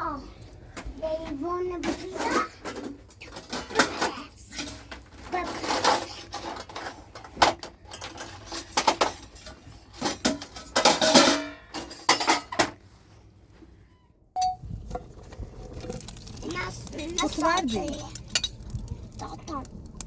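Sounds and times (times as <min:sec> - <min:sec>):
dishes and cutlery clattering: 0:01.8 - 0:12.8
scraping of dishes: 0:01.8 - 0:12.9.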